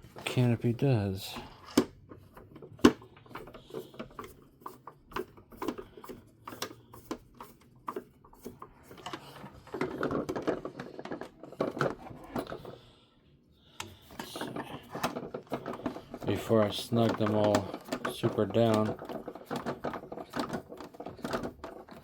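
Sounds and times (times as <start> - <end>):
plastic being handled: 13.9 - 22.0.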